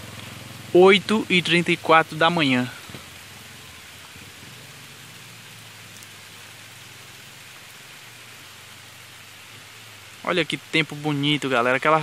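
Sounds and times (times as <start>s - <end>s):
rain hissing: 0.0s - 12.0s.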